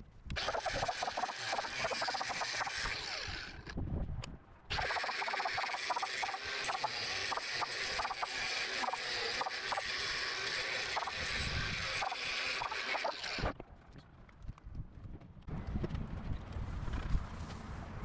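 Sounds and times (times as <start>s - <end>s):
power tool rasping plastic: 0.3s - 3.8s, 4.7s - 13.6s.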